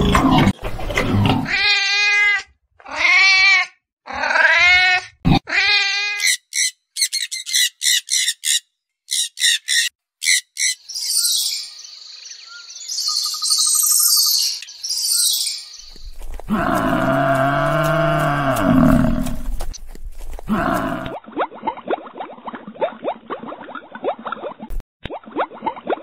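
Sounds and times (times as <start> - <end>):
cat meowing: 1.5 - 6.2
squirrel chirping and chattering: 6.2 - 16.0
cow mooing: 16.5 - 19.5.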